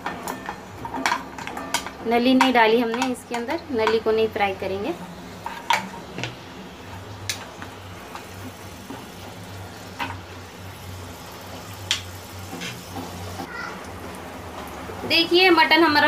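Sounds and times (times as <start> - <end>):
meat sizzling in a pan: 4.7 - 14.7.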